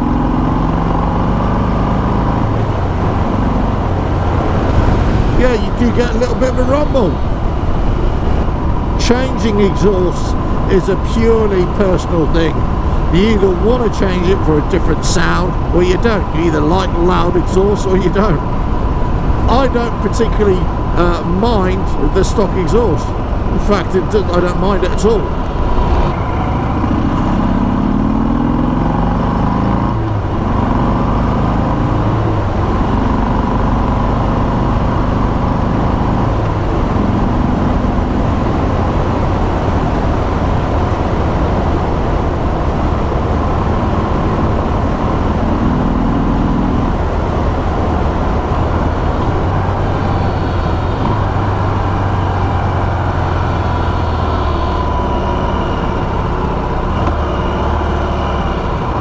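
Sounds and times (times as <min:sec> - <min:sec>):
motorcycle engine rumble: 0:02.4 - 0:28.1
steady rush of noise: 0:03.6 - 0:27.9.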